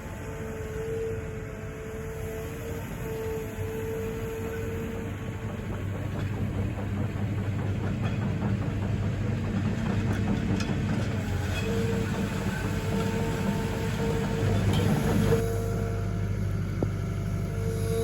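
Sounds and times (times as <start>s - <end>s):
excavator diesel engine running: 0.0s - 18.0s
steel tracks clattering: 4.4s - 15.6s.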